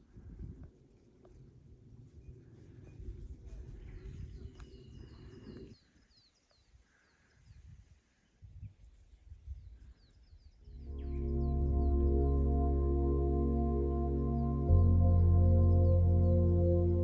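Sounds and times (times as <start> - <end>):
faint outdoor background: 0.0 - 17.0
bird chirping: 10.0 - 17.0
low rumble: 10.7 - 17.0.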